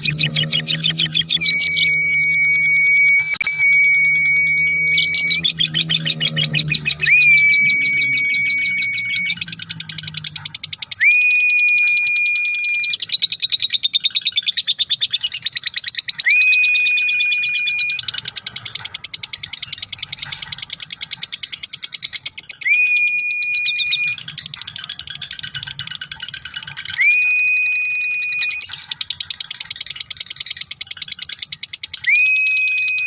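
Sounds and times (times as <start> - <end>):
bird chattering trill: 0.0 - 33.0
high whistled note: 1.2 - 5.7, 6.9 - 9.4, 27.0 - 28.6.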